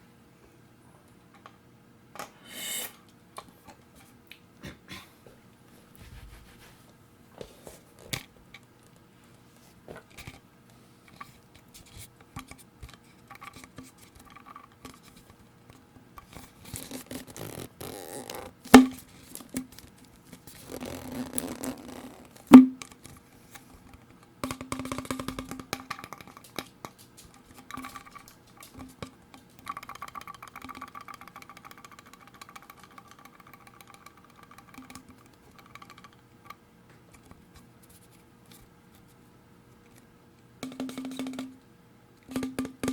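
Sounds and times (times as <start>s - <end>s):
fingers tapping on plastic bottles: 24.4s - 36.2s, 40.6s - 41.6s, 42.3s - 42.9s.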